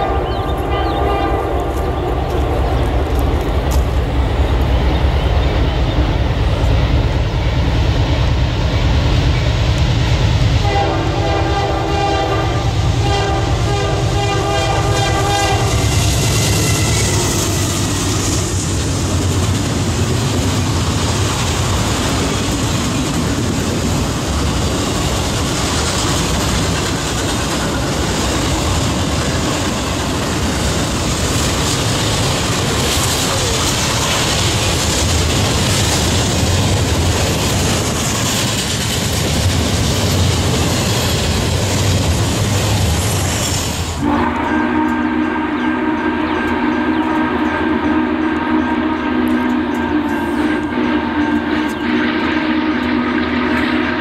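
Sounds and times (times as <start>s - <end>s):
locomotive air horn: 0.0s - 2.4s, 10.6s - 18.1s, 44.0s - 54.0s
train wheels on rail: 0.0s - 54.0s.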